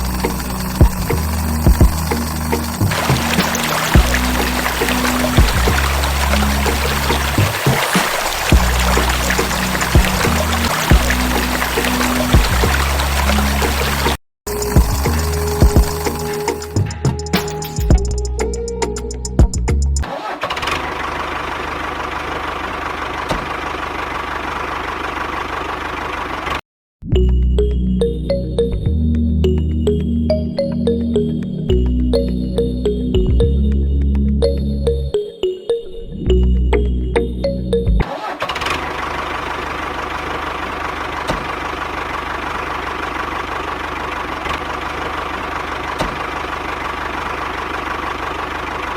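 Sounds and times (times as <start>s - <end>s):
small motor humming: 0.0s - 16.8s
machine droning: 0.0s - 17.2s
music: 0.0s - 20.0s, 27.0s - 38.0s.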